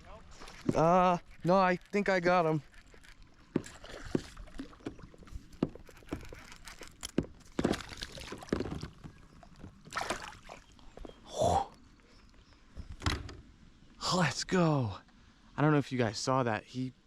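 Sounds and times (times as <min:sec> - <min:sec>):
knocks and clicks against boat: 0:00.4 - 0:10.0
fish splashing in water: 0:09.8 - 0:10.7.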